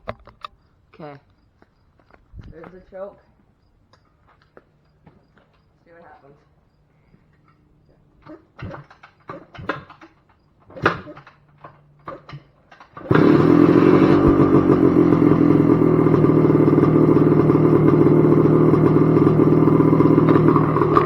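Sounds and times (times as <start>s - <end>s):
motorcycle engine running: 13.0s - 21.0s.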